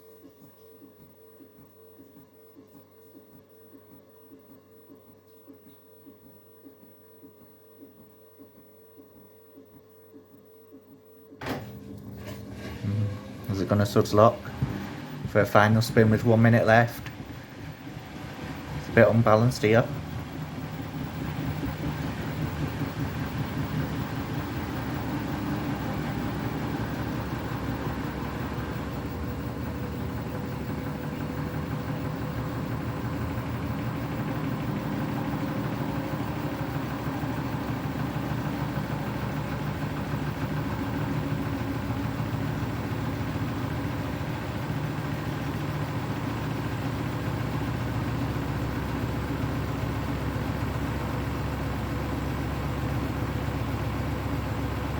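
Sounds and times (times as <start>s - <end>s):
washing machine spinning: 11.4s - 54.9s.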